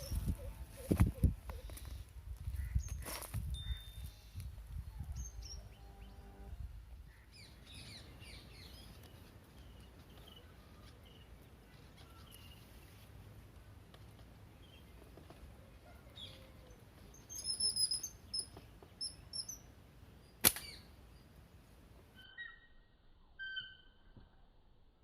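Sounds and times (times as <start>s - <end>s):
high bird chirps: 17.1s - 19.7s, 22.2s - 24.1s
sharp loud crack: 20.4s - 20.8s
bird whistled call: 22.2s - 22.8s, 23.4s - 24.0s.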